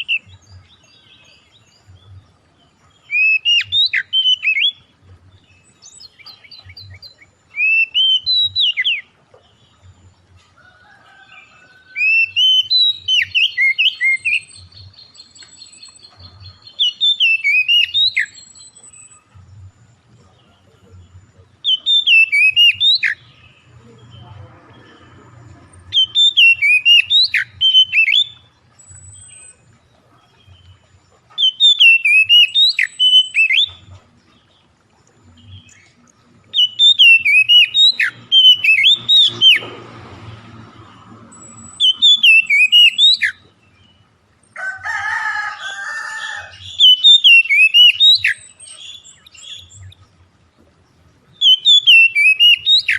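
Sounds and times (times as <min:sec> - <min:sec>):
songbird whistled song: 0:00.0 - 0:39.8, 0:40.8 - 0:44.6, 0:45.3 - 0:52.9
high rapid bird trill: 0:11.4 - 0:19.7, 0:20.4 - 0:24.3, 0:25.7 - 0:34.5, 0:36.6 - 0:39.7, 0:40.8 - 0:43.5, 0:45.1 - 0:50.0, 0:51.2 - 0:52.9.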